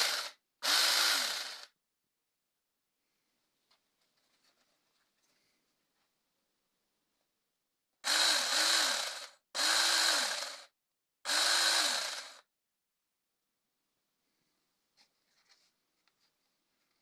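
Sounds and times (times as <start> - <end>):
electric power tool motor: 0.0 - 1.7, 8.0 - 10.7, 11.3 - 12.4.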